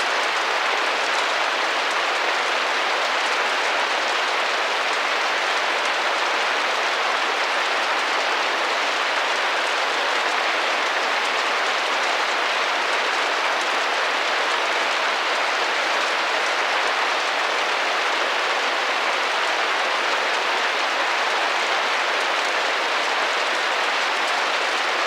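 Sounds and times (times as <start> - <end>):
rain on a window: 0.0 - 25.0.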